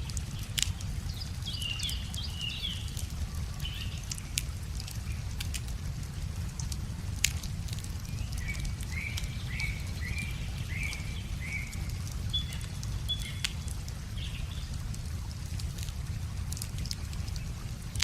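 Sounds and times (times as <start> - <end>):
songbird chirping: 0.0 - 5.6, 7.2 - 15.0
wood fire crackling: 0.0 - 18.0.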